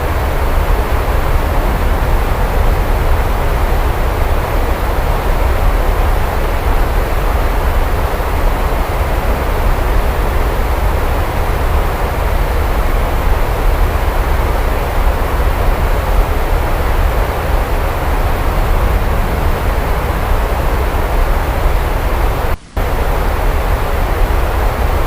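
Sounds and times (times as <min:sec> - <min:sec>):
deep rumble: 0:00.0 - 0:06.8, 0:15.9 - 0:22.6
heavy rain: 0:00.0 - 0:25.0.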